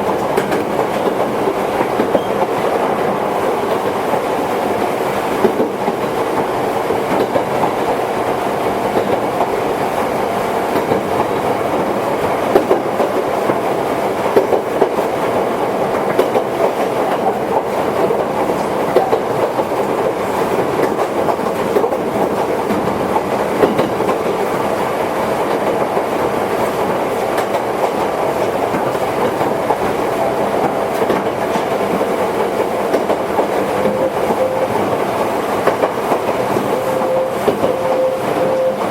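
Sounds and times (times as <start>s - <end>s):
train wheels and motors rumbling: 0.0s - 38.9s
wheels clicking over rail joints: 16.0s - 24.4s.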